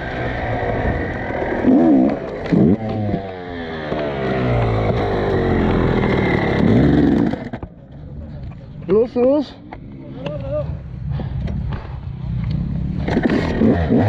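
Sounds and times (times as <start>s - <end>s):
dirt bike engine revving: 0.0s - 7.6s, 11.6s - 14.0s.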